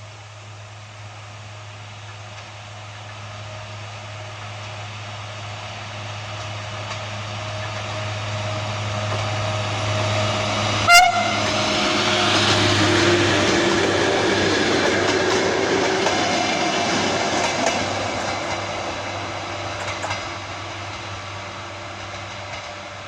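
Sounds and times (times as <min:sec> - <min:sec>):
diesel train engine hum: 0:00.0 - 0:23.0
train horn blast: 0:10.8 - 0:12.5.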